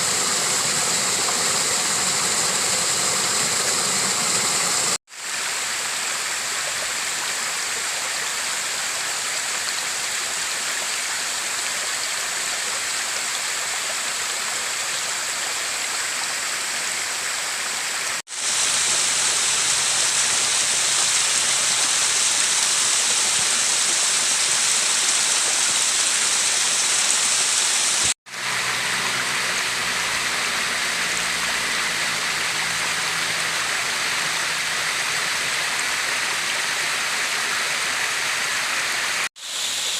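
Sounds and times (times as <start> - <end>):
river water rushing: 0.0 - 6.6, 16.0 - 39.9.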